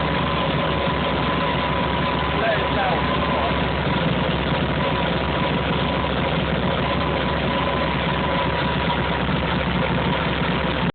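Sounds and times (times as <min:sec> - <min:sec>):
racing engine idling: 0:00.0 - 0:10.9.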